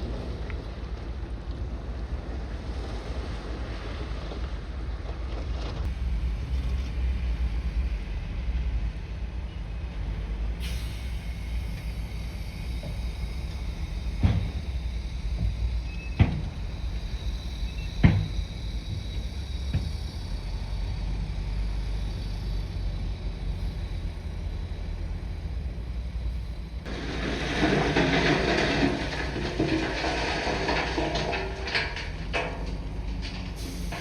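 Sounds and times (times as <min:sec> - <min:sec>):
bulldozer diesel engine running: 0:05.9 - 0:34.0
rough rattling noise: 0:26.9 - 0:34.0.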